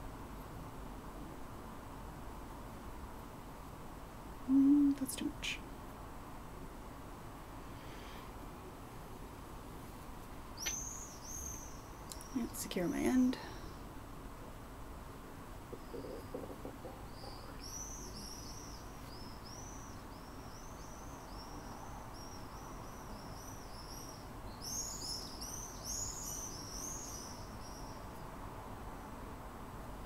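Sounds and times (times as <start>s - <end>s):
small bird singing: 10.6s - 13.9s, 15.7s - 28.3s.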